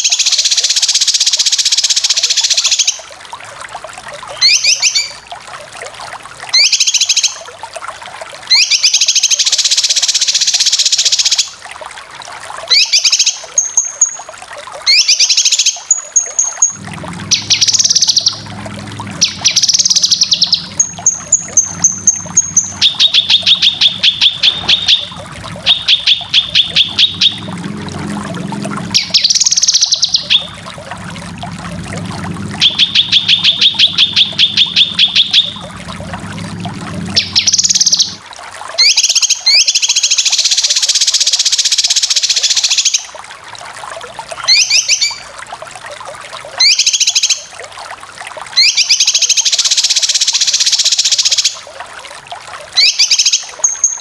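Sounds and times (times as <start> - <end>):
bird singing rapid high notes: 14.9 - 18.5, 19.2 - 27.6, 28.7 - 31.0, 32.5 - 36.1, 37.1 - 38.2
low steady hum: 16.4 - 38.5.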